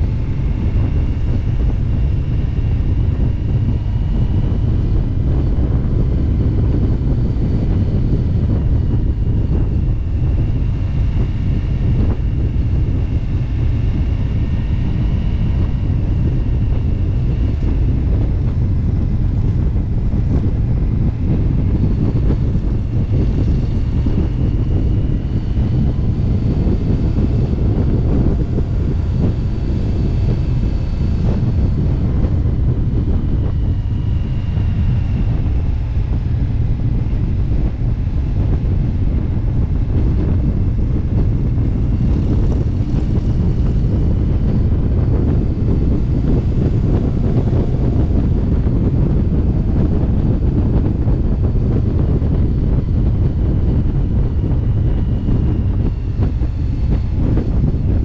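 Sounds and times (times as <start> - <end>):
motorcycle engine cruising: 0.0 - 58.0
wind rushing over microphone: 0.0 - 58.0.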